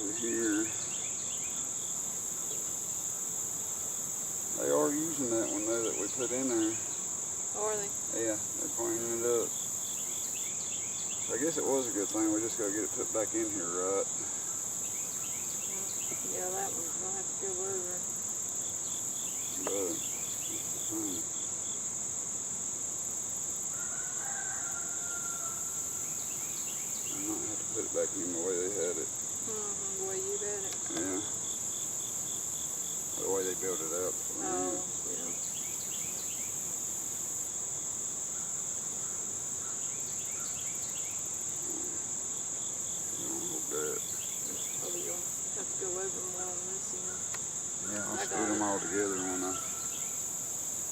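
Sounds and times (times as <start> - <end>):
high-pitched insect trilling: 0.0 - 50.9
short insect chirps: 18.0 - 50.9.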